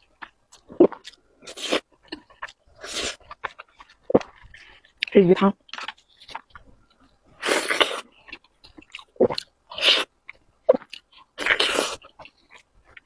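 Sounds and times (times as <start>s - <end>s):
chewing and wet mouth noises: 0.0s - 13.0s.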